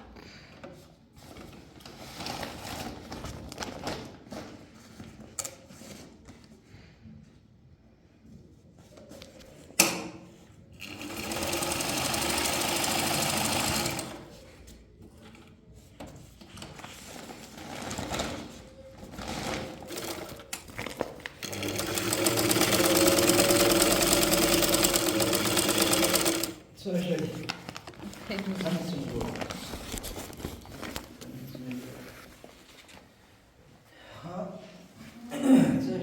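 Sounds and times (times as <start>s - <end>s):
soft handling sounds: 0.1s - 10.7s, 14.3s - 19.2s, 26.8s - 35.2s
sewing machine running: 10.8s - 14.3s, 19.6s - 20.5s, 21.4s - 26.6s.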